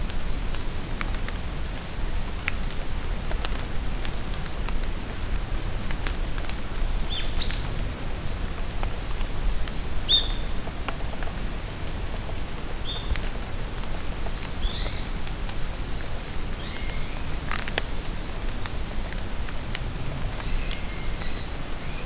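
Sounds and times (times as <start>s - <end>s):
rain falling in forest: 0.0s - 22.0s
songbirds calling: 8.9s - 11.9s, 12.8s - 18.5s, 20.4s - 22.0s.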